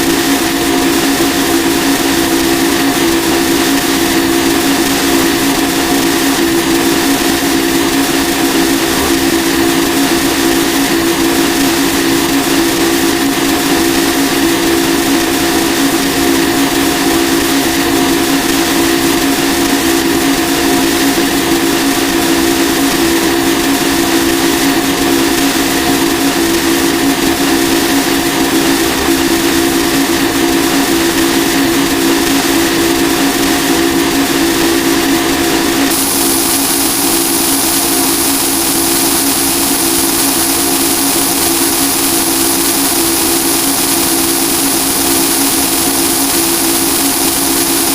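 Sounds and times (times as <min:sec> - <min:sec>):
steady high whine: 0:00.0 - 0:47.9
harsh noise wall: 0:33.6 - 0:47.9
static-like noise: 0:34.0 - 0:47.9.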